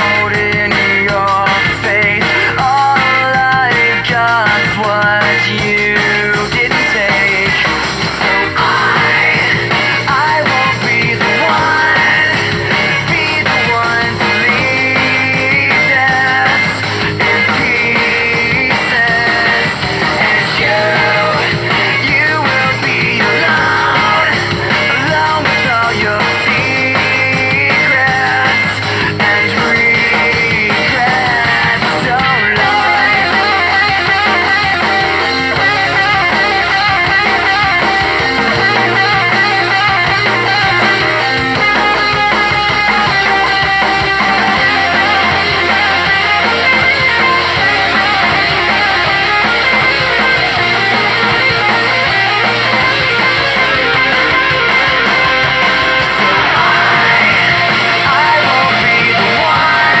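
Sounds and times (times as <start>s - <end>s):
bass line: 0.0s - 60.0s
rock music with guitar: 0.0s - 60.0s.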